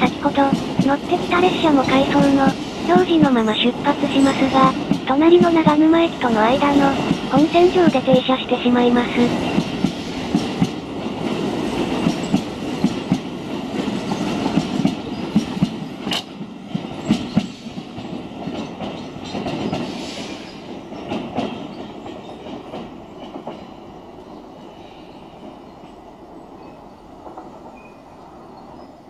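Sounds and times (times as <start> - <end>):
train wheels clacking over joints: 11.8 - 23.8.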